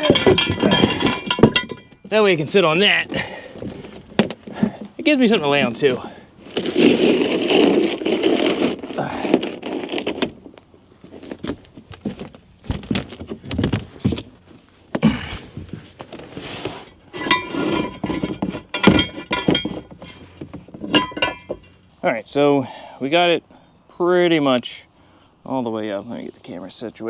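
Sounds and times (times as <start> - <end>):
metal knocks and scraping: 0.0 - 8.8, 11.1 - 22.0.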